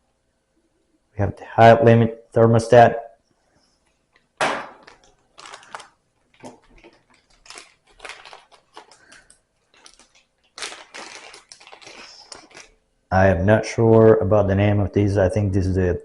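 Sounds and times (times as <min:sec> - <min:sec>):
packaging crinkling and rustling: 0:04.7 - 0:12.8.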